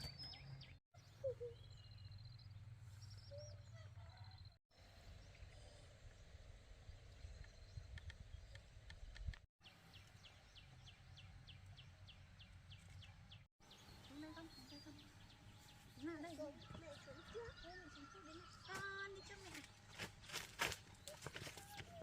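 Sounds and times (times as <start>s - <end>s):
birds chirping: 6.9s - 22.0s.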